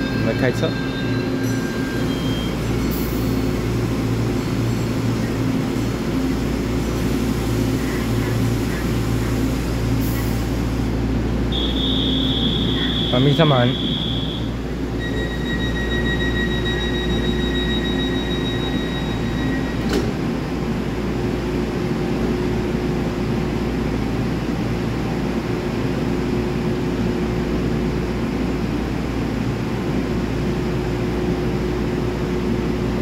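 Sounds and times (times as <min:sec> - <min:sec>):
high steady door beep: 0:11.5 - 0:20.0.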